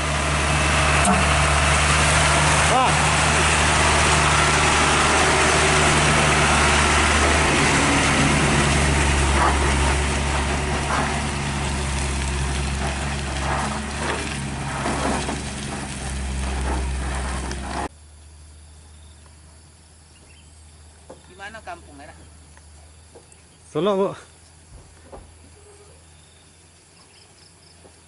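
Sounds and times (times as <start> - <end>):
truck diesel engine running: 0.0 - 17.9.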